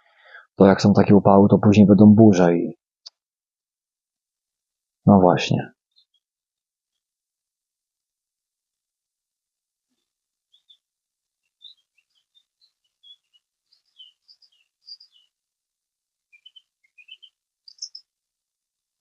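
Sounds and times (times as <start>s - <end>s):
songbird chirping and whistling: 10.5s - 10.8s, 11.4s - 15.4s, 16.3s - 18.1s.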